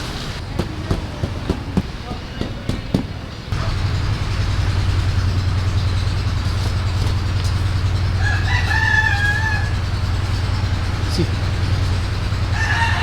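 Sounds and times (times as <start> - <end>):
steady low rumble: 3.5 - 13.0
rooster crowing: 7.8 - 13.0.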